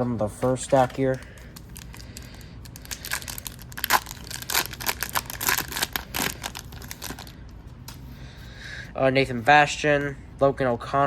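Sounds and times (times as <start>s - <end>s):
cards and wrapper crinkling: 0.4s - 7.4s.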